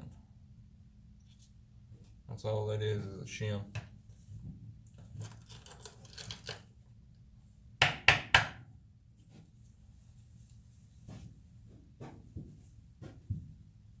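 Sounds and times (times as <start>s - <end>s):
metal parts clinking: 5.0s - 6.7s.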